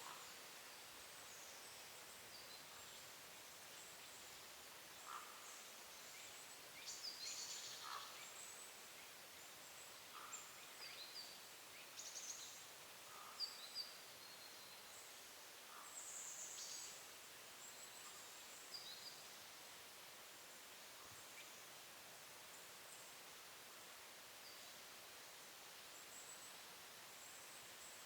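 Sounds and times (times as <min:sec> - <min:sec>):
songbirds calling: 0:04.9 - 0:15.1.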